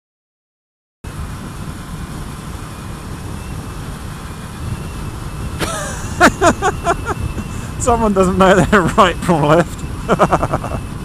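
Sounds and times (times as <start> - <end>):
motorcycle engine rumble: 1.1 - 11.0
wind noise: 1.1 - 11.0.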